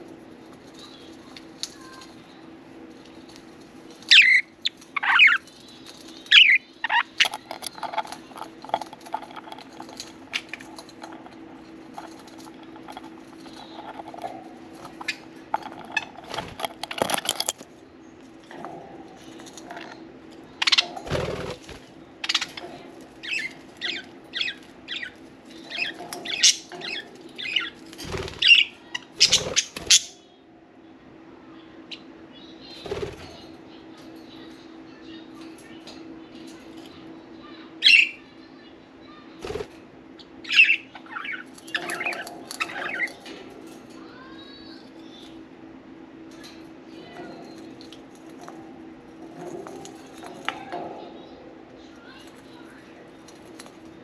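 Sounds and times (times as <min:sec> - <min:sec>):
low hum: 0:00.0 - 0:28.6.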